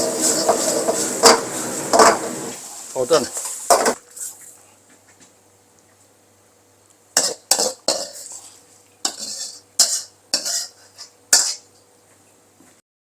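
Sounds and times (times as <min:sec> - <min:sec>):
metal utensil scraping a wok: 0:00.0 - 0:02.6, 0:07.2 - 0:11.7.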